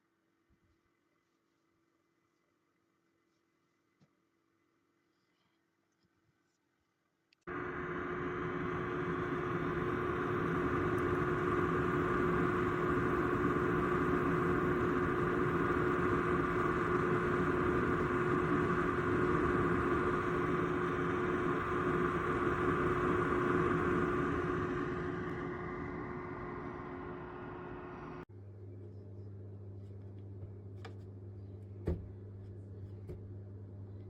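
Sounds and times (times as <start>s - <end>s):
dehumidifier fan whirring: 7.5s - 34.0s.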